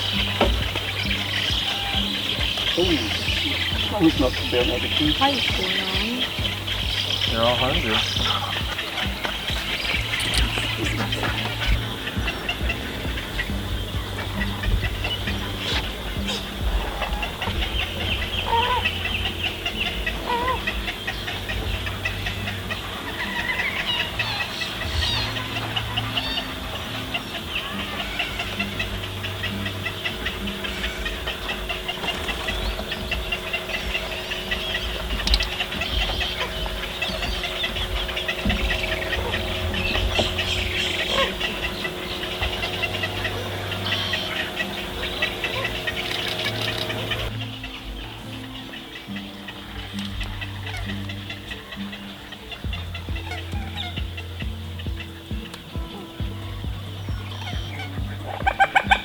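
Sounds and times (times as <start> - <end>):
lower bent bird calls: 0.0 - 59.0
steady low rumble: 0.0 - 59.0
wading birds chirping: 0.0 - 59.0.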